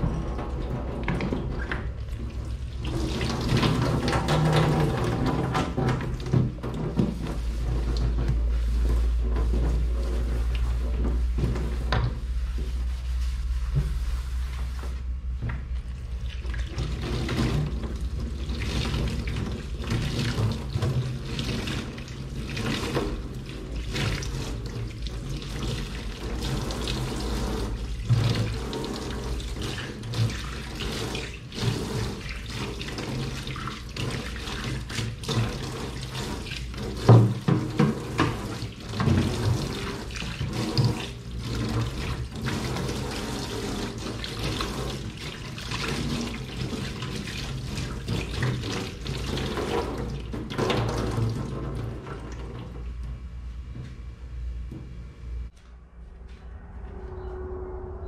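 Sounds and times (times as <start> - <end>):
water running from tap: 0.0 - 10.8, 15.9 - 52.7.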